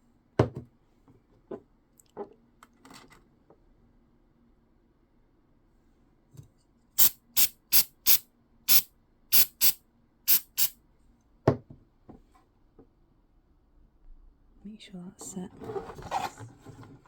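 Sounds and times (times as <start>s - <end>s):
aerosol spray can squirts: 7.0s - 10.7s.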